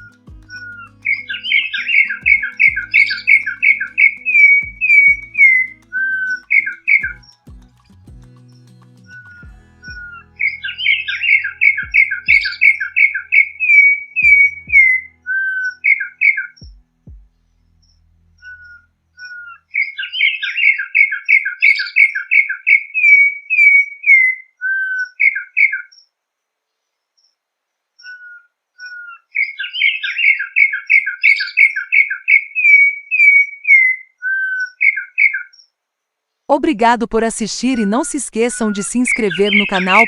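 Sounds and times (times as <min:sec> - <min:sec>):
bird singing whistled song: 0:00.0 - 0:07.5, 0:08.4 - 0:16.8, 0:28.0 - 0:35.6.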